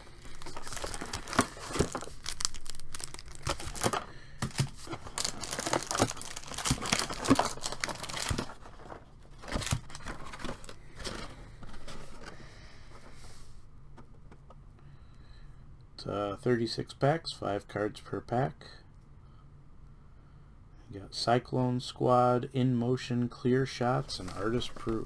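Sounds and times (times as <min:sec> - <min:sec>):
cardboard and card packs crinkling: 0:00.0 - 0:12.5, 0:24.0 - 0:25.0.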